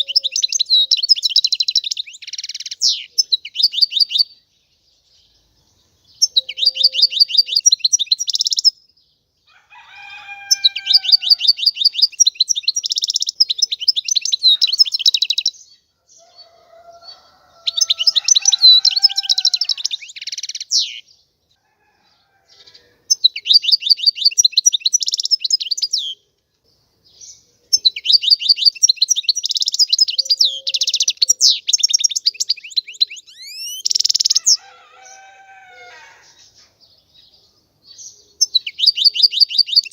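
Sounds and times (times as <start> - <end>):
finch twittering trills: 0.0 - 4.3, 6.1 - 8.7.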